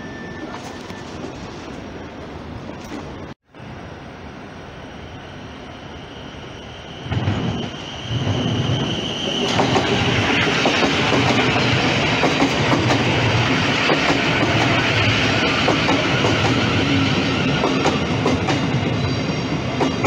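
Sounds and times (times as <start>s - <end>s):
high train whine: 0.0s - 20.0s
train wheels clicking over rail joints: 9.4s - 20.0s.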